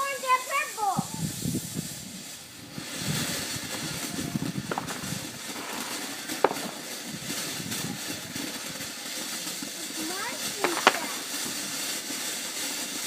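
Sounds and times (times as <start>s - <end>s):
firework fountain hissing: 0.0s - 13.0s
sharp pops: 2.8s - 8.8s, 10.3s - 12.2s.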